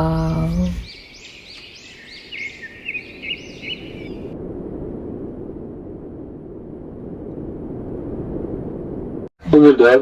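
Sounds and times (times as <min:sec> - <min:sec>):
birds calling: 0:00.0 - 0:04.4
steady low rumble: 0:04.2 - 0:10.0.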